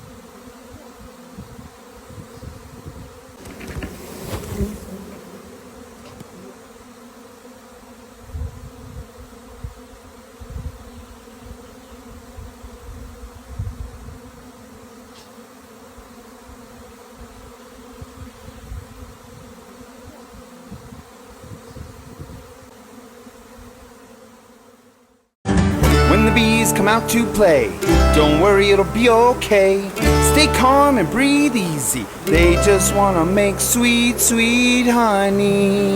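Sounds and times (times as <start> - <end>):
bees buzzing: 0.0 - 8.3, 14.2 - 35.9
low thumps: 3.4 - 6.7.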